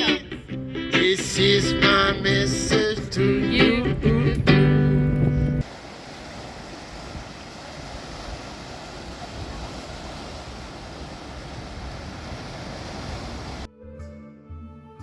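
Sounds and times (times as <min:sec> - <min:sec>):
coastal wind: 0:00.0 - 0:13.7
ocean surf rushing: 0:05.6 - 0:13.7.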